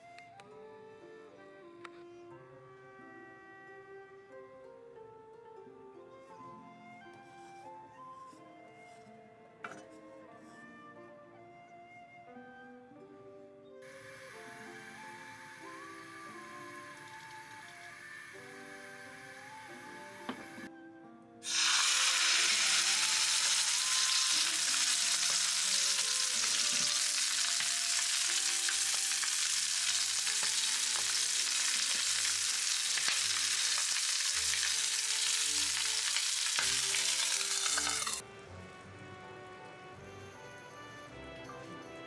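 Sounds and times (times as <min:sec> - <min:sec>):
chicken sizzling in a frying pan: 0:13.8 - 0:20.6, 0:21.4 - 0:38.2.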